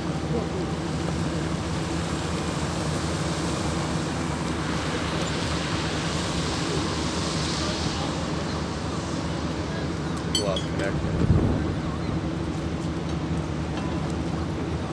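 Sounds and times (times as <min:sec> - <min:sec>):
low engine hum: 0:00.0 - 0:14.9
rushing hiss: 0:00.9 - 0:12.4.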